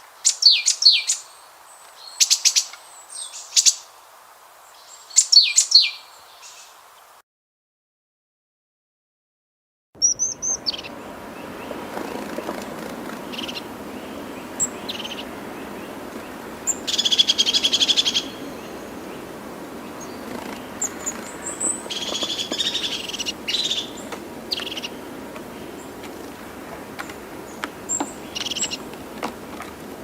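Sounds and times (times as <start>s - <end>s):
high bird chirps: 0.2s - 1.3s, 4.8s - 6.7s, 10.0s - 26.0s, 27.4s - 28.9s
loud rapid bird trills: 0.2s - 1.4s, 10.0s - 28.9s
steady background noise: 10.4s - 30.0s.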